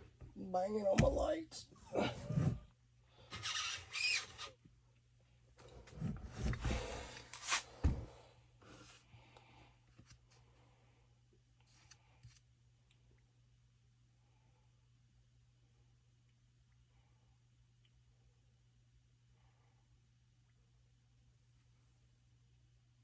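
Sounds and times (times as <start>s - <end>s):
rubbing and scraping: 1.9s - 2.7s, 5.9s - 7.9s.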